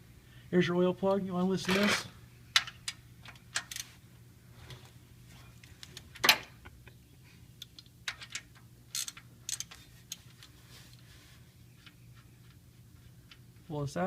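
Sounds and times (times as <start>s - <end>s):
ratchet wrench clicking: 7.7s - 10.2s.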